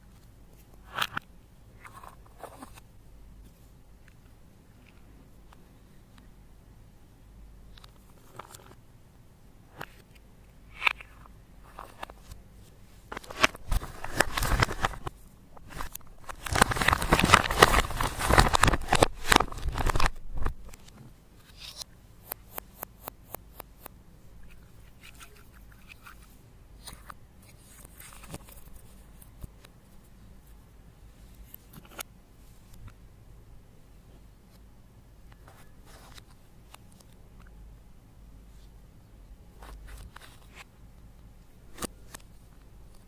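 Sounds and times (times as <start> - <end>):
crackly scraping and crunching: 13.1 - 21.9.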